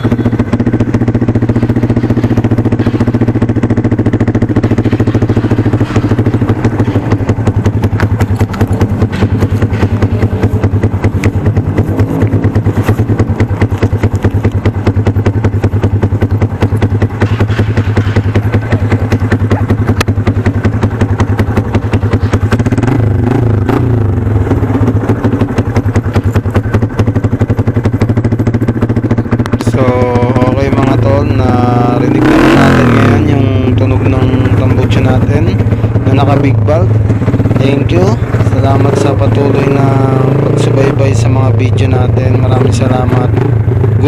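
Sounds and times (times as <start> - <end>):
motorcycle engine idling: 0.0 - 44.0.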